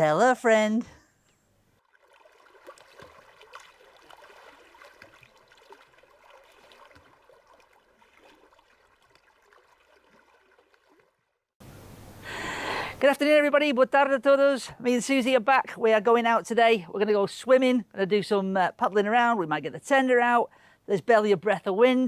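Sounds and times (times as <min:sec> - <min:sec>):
water trickling and lapping: 0:01.7 - 0:13.0.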